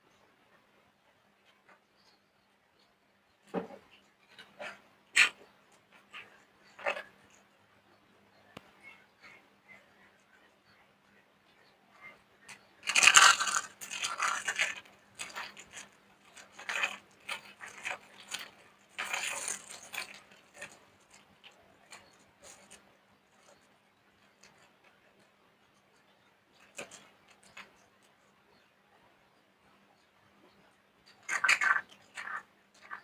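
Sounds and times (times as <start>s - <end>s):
dried soap crunching: 12.5s - 22.8s, 31.0s - 33.0s.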